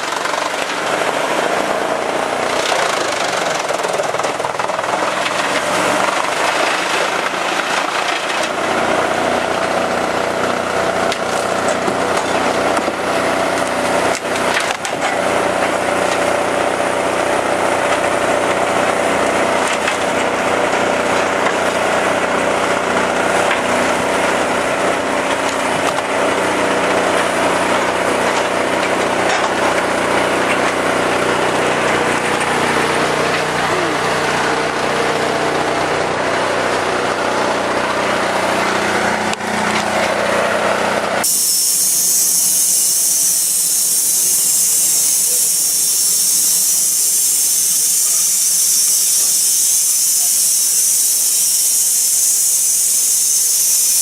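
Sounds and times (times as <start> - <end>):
chainsaw cutting wood: 41.2 - 54.0.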